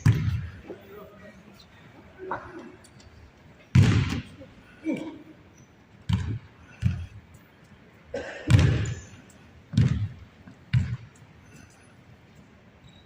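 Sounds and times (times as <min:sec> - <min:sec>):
basketball bouncing on court: 0:00.0 - 0:00.6, 0:03.7 - 0:04.4, 0:06.0 - 0:07.2, 0:08.4 - 0:11.2.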